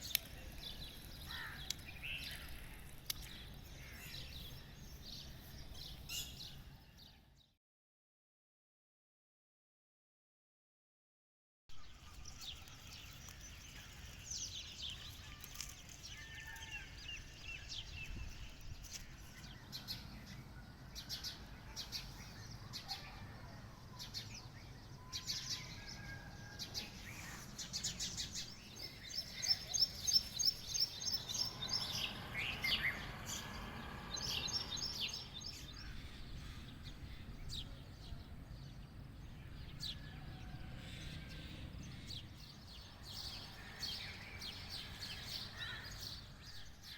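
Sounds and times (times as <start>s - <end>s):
birds chirping and calling: 0.0s - 6.7s, 23.9s - 37.9s, 39.4s - 46.9s.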